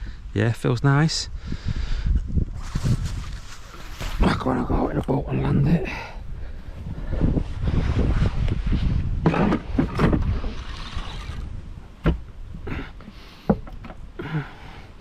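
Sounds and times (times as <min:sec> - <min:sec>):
boat and fishing gear handled: 0:02.4 - 0:05.7, 0:09.2 - 0:14.2.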